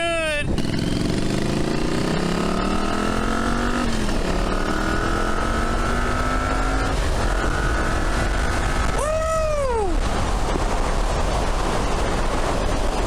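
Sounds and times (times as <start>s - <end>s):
motorcycle engine accelerating: 0.4s - 9.1s.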